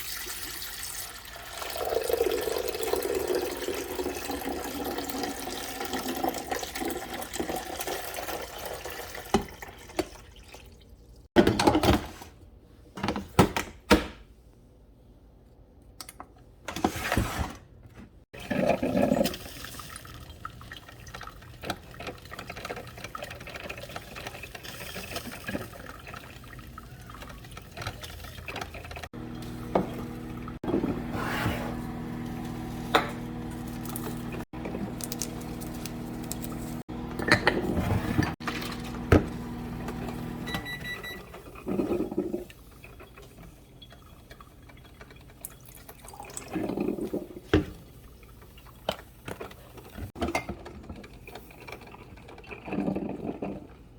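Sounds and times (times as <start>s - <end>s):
liquid pouring into cup: 0.1s - 10.8s, 43.9s - 47.4s
coffee machine pump humming: 28.5s - 44.0s.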